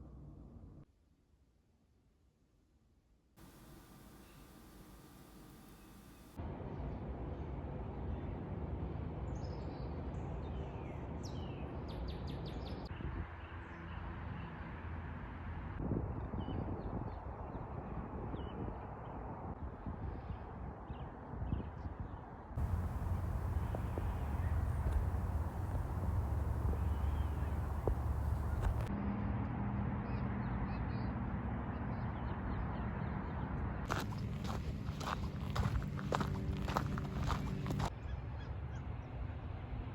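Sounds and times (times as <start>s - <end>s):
wild birds singing: 3.4s - 6.3s, 22.6s - 28.9s
low outdoor rumble: 3.4s - 6.4s, 22.6s - 28.9s.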